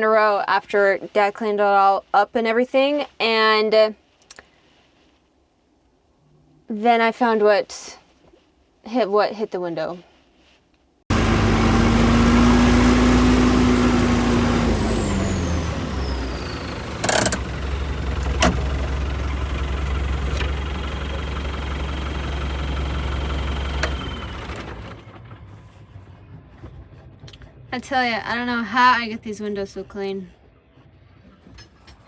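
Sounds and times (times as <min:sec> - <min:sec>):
tractor engine running: 0:11.1 - 0:29.0
sharp clicks: 0:15.2 - 0:25.0.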